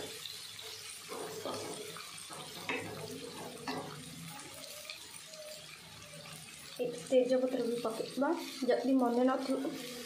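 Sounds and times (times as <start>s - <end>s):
spatula scraping and knocking pan: 0.0s - 4.2s
onions sizzling in hot oil: 0.0s - 10.0s.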